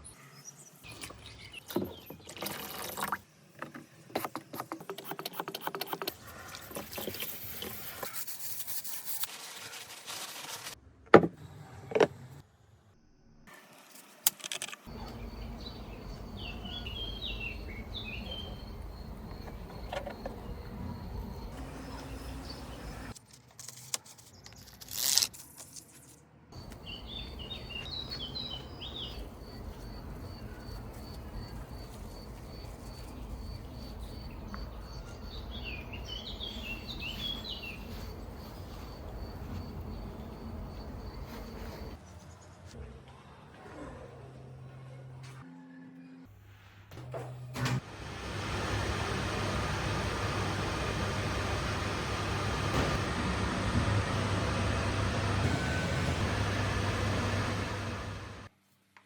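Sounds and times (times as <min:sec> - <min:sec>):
bird twittering: 0:14.9 - 0:23.1, 0:26.6 - 0:38.8.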